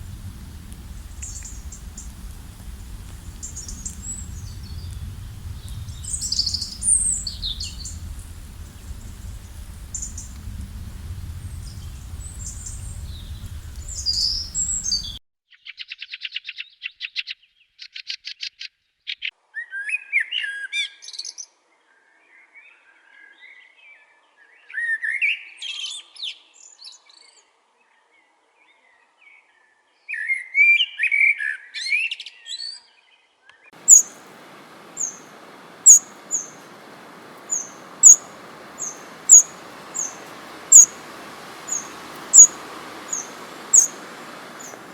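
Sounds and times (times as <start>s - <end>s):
low rumble: 0.0s - 15.2s
steady hiss: 0.0s - 15.2s, 33.8s - 44.9s
songbirds singing: 0.0s - 17.2s, 33.8s - 44.9s
high bird chirps: 0.8s - 10.4s, 11.4s - 16.6s, 33.8s - 44.9s
fast even bird trill: 33.8s - 44.0s.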